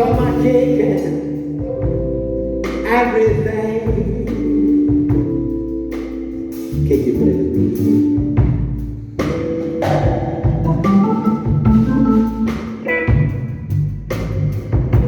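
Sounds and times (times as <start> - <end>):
bass: 0.0 - 15.0
drum kit strikes: 8.2 - 15.0.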